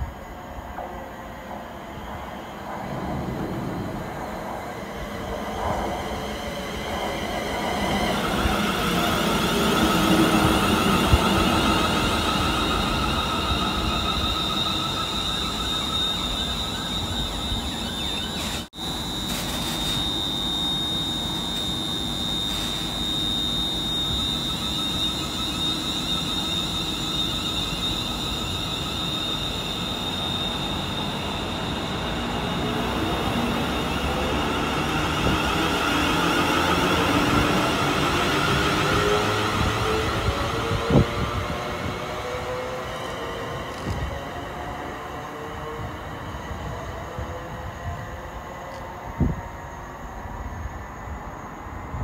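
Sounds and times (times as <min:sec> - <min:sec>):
train wheels rumbling on rail: 0:00.0 - 0:50.5
high steady whine: 0:00.0 - 0:52.0.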